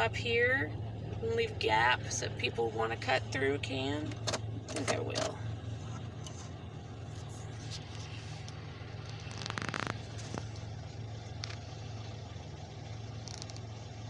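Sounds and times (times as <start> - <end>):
car engine idling: 0.0 - 14.0
rustling scrape: 7.1 - 8.5.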